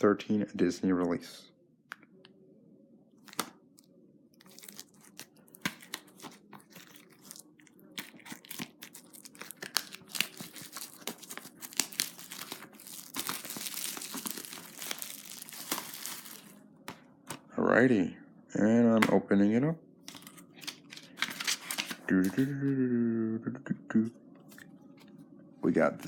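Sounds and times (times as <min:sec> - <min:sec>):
plastic wrap tearing and crinkling: 0:03.2 - 0:03.5, 0:04.4 - 0:16.6, 0:20.1 - 0:22.1.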